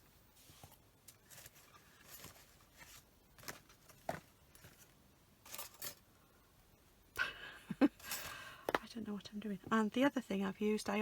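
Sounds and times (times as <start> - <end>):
paper and card rustling: 0.4 - 4.9.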